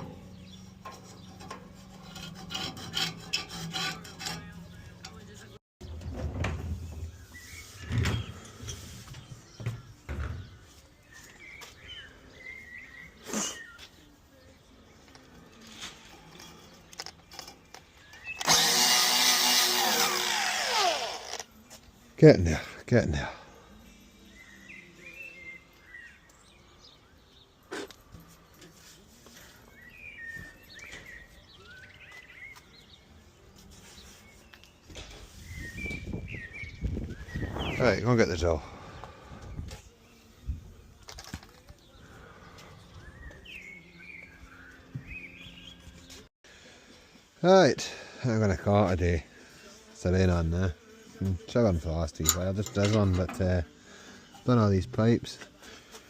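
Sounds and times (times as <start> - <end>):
songbird singing: 0.0 - 2.1, 4.3 - 18.5, 21.6 - 46.7
birds chirping faintly: 0.0 - 18.6, 21.5 - 56.0.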